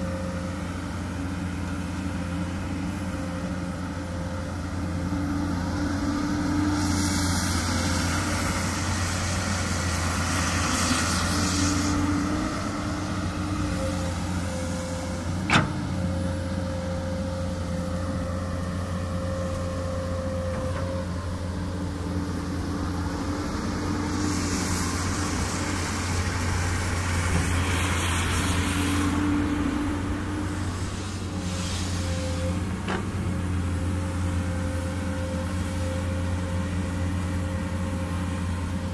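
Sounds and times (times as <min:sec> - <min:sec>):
excavator diesel engine running: 0:00.0 - 0:38.9
hydraulic hiss: 0:30.5 - 0:32.6.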